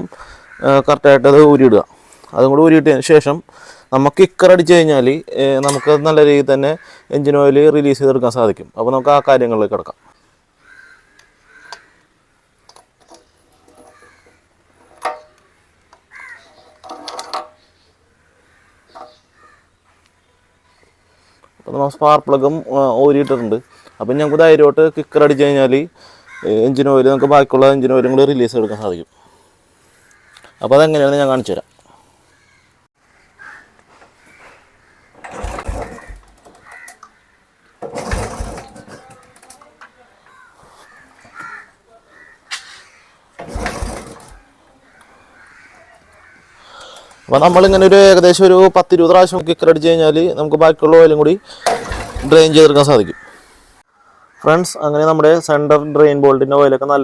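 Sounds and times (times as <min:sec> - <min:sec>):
hand tools clicking and knocking: 0:05.6 - 0:05.9, 0:12.7 - 0:15.4, 0:16.7 - 0:17.6, 0:35.1 - 0:37.2, 0:37.8 - 0:39.9, 0:51.6 - 0:52.6
motorcycle engine kicked over: 0:35.1 - 0:36.8, 0:37.8 - 0:39.6, 0:43.4 - 0:44.4, 0:51.6 - 0:52.8.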